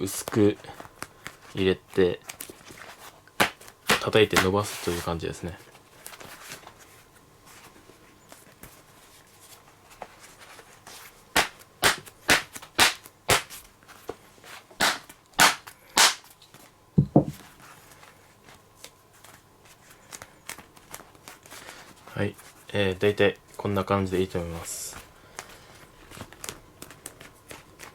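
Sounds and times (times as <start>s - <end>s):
dull thuds: 17.0s - 17.4s.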